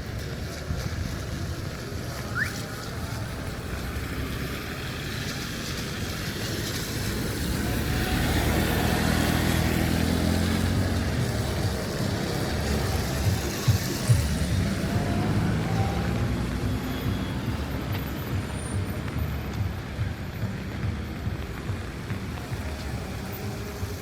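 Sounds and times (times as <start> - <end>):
road traffic noise: 0.0 - 24.0
vehicle engine passing close: 3.1 - 16.9.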